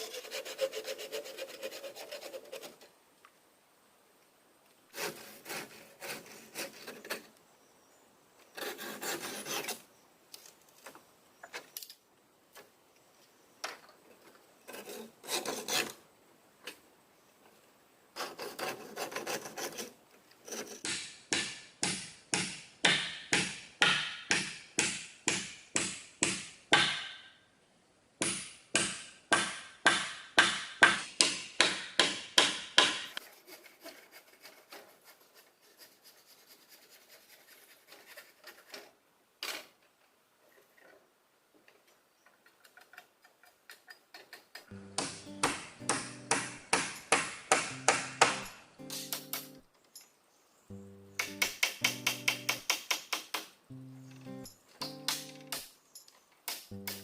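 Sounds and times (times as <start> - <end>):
hand tool scraping wood: 0.0 - 2.9, 4.9 - 7.4, 8.4 - 9.9, 14.2 - 16.0, 18.2 - 21.0, 32.8 - 39.0, 51.2 - 53.4.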